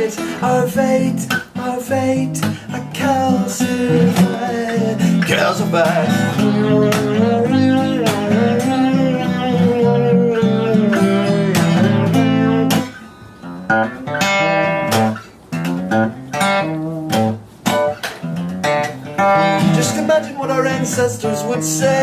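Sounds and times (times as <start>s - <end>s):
acoustic guitar strumming: 0.0s - 22.0s
picked guitar notes: 0.0s - 22.0s.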